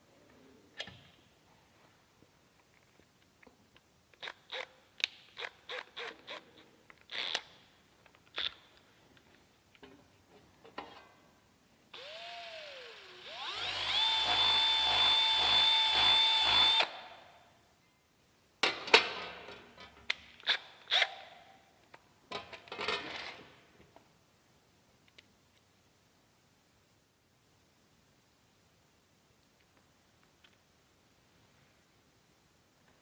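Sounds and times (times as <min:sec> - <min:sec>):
power drill whining: 0:12.0 - 0:17.0.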